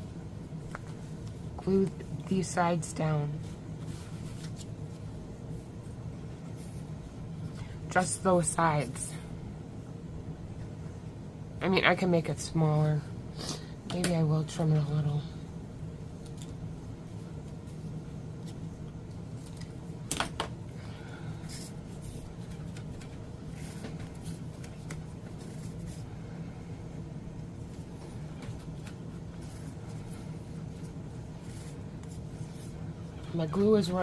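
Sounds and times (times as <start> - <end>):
steady low hum: 0.0 - 34.0
paper handling: 3.4 - 5.0, 21.5 - 26.1.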